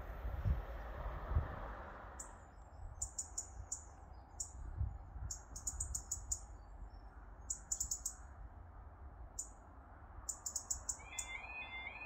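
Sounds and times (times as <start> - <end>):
small bird chirping: 2.2 - 8.3, 10.3 - 12.0.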